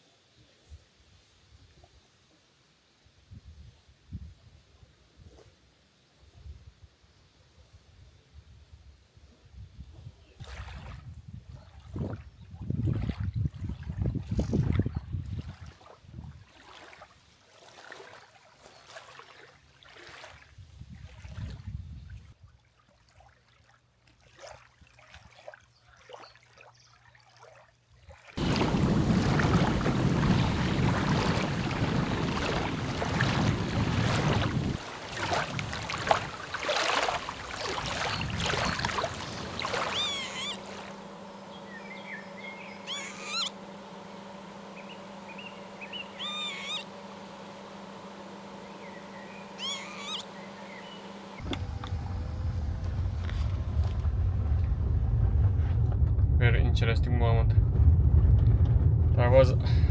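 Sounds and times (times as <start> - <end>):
loud rush of noise: 28.4 - 42.4, 51.4 - 59.9
bird calls: 28.4 - 44.1, 44.7 - 47.2, 48.6 - 51.4
low engine-like hum: 28.4 - 59.9.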